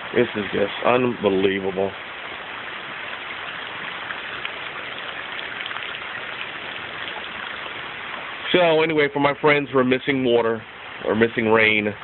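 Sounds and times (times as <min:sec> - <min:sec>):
rain falling: 0:00.0 - 0:12.0.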